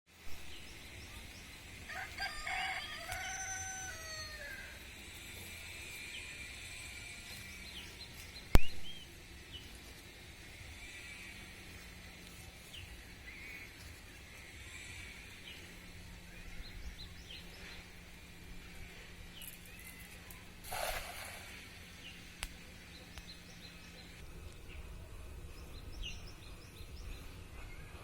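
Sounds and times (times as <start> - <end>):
rooster crowing: 1.9 - 4.8.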